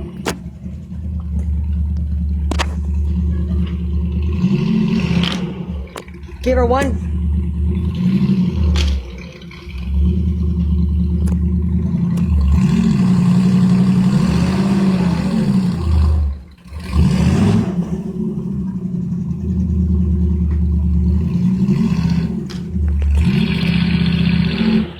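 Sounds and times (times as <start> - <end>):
diesel engine working under load: 0.0 - 24.9.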